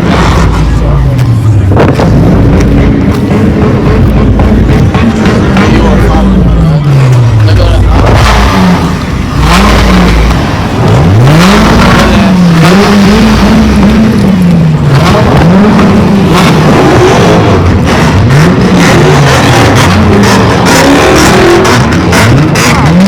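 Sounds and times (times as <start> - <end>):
car engine revving hard: 0.0 - 23.0.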